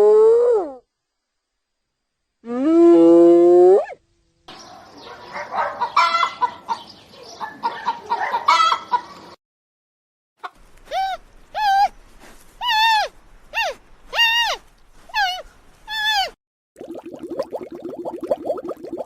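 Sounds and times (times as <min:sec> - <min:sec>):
hen clucking: 0:05.3 - 0:09.3.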